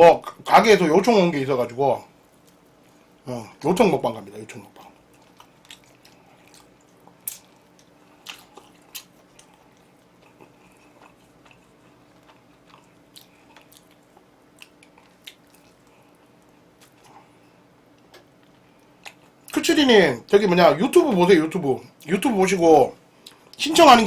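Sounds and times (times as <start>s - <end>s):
faint steady hum: 0.0s - 24.0s
crunchy chewing: 4.7s - 19.6s.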